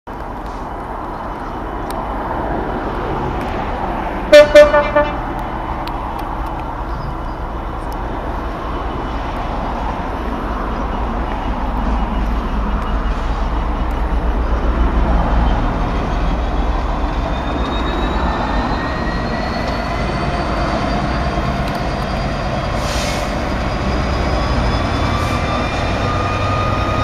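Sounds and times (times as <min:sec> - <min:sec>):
train rumbling: 0:00.1 - 0:27.0
locomotive horn toots: 0:04.3 - 0:05.3.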